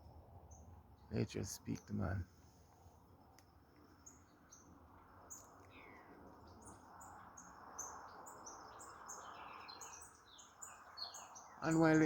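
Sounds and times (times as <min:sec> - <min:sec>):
birds chirping: 0:00.5 - 0:02.3, 0:04.0 - 0:12.0.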